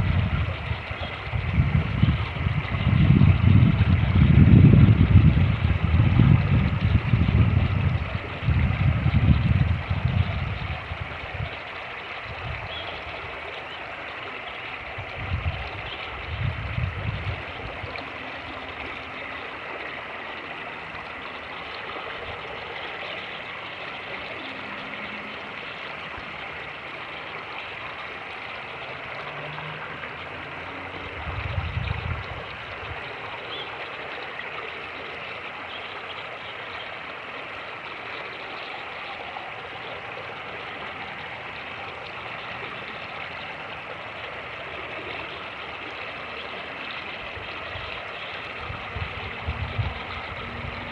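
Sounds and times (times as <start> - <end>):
wind rumbling on microphone: 0.0 - 13.4, 14.8 - 21.2, 29.0 - 33.4, 46.8 - 50.9
creek rushing over rapids: 0.0 - 50.9.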